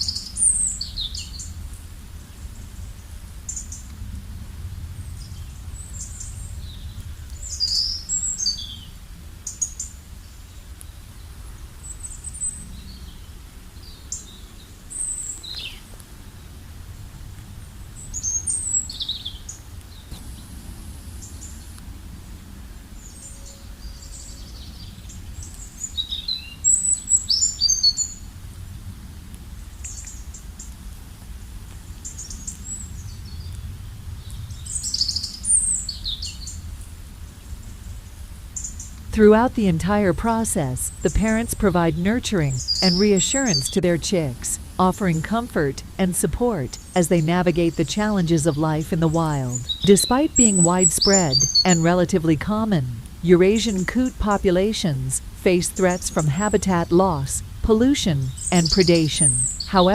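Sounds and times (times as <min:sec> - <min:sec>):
low outdoor rumble: 0:30.8 - 0:59.9
birds chirping: 0:38.6 - 0:59.9.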